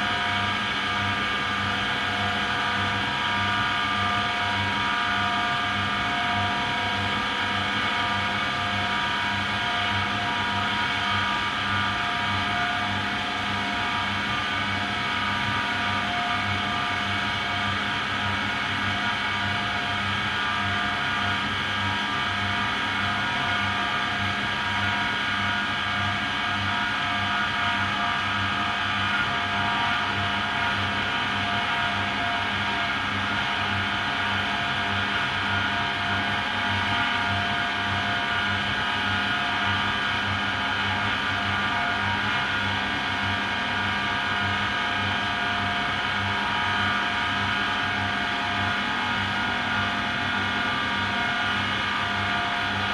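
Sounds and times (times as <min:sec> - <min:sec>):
washing machine motor whine: 0:00.0 - 0:52.9.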